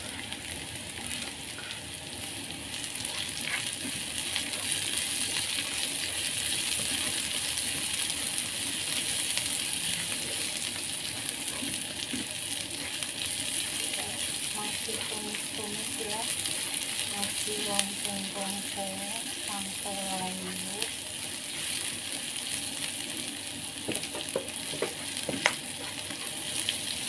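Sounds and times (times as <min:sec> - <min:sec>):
food sizzling in hot oil: 0:00.0 - 0:27.0.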